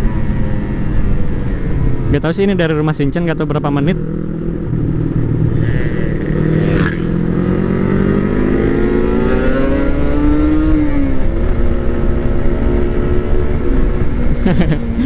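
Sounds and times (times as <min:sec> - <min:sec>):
motorcycle engine revving: 0:03.4 - 0:15.0.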